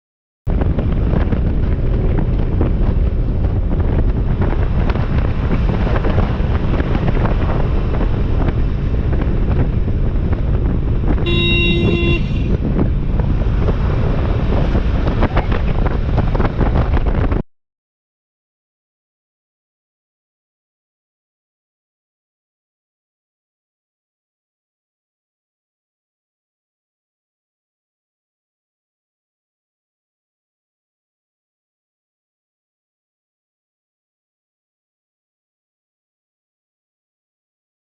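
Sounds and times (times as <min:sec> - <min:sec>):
vehicle road noise: 0:00.5 - 0:17.4
wind buffeting microphone: 0:00.5 - 0:17.4
vehicle horn: 0:11.2 - 0:12.6.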